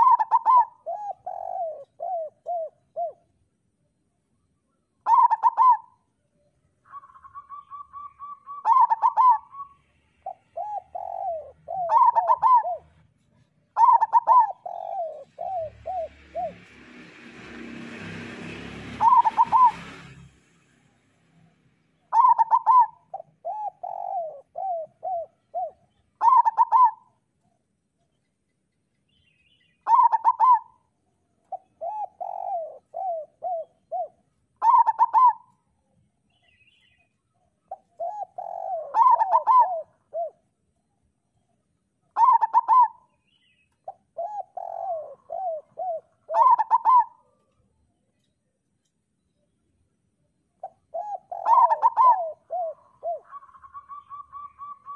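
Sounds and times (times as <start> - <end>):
dove cooing: 0.0 - 3.4, 5.0 - 6.1, 6.8 - 16.8, 18.9 - 20.0, 22.1 - 27.6, 29.8 - 35.7, 37.7 - 40.7, 42.1 - 43.2, 43.8 - 47.7, 50.6 - 54.9.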